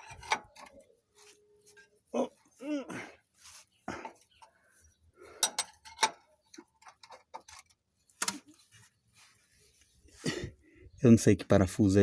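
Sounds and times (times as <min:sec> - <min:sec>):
hand tools clicking and tapping: 0:00.0 - 0:00.9, 0:05.3 - 0:08.5.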